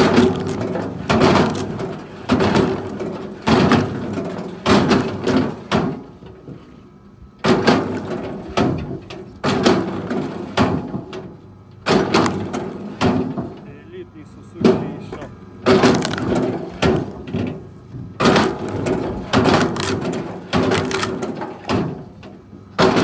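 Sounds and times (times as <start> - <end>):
heavy knocks: 0.0 - 6.6, 11.9 - 13.7, 14.6 - 22.2, 22.8 - 23.0
steady hum: 0.0 - 23.0.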